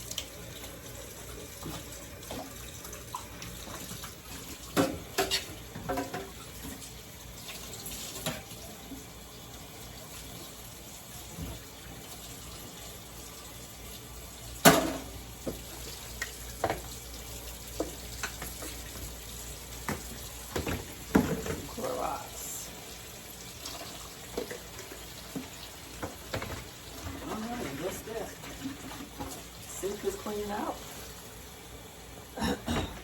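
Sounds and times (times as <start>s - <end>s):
tap running water into sink: 0.0s - 13.0s, 13.9s - 22.1s, 22.8s - 31.2s
knocks and clatters in sink: 4.6s - 6.4s, 14.6s - 15.7s, 19.8s - 21.9s, 25.3s - 29.5s, 32.4s - 33.0s.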